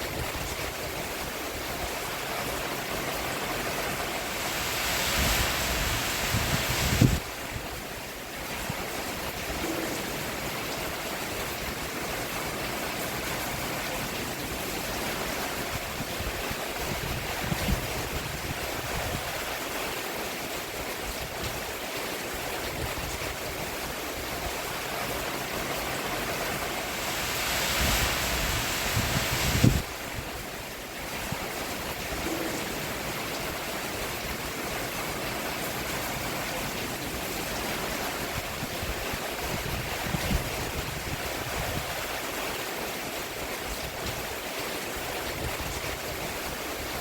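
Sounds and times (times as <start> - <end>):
rain on a roof: 0.0 - 47.0.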